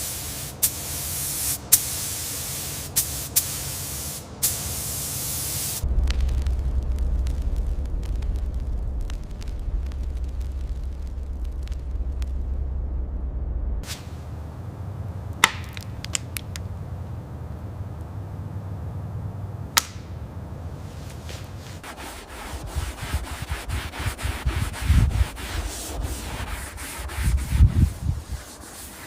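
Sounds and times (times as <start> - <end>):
low steady hum: 5.6 - 28.8
sharp clicks: 15.4 - 16.7
sanding metal: 21.7 - 29.0.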